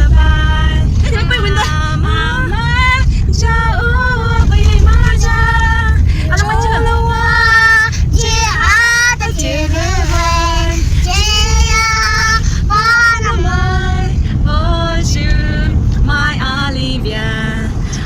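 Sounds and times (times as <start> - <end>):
steady low rumble: 0.0 - 18.0
children and women singing: 3.4 - 14.2.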